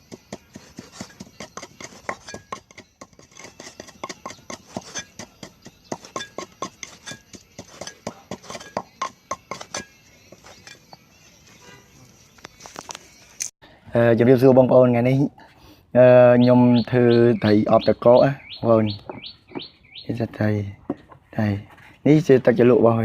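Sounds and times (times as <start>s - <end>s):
utensils clinking against dishes: 0.5s - 11.0s.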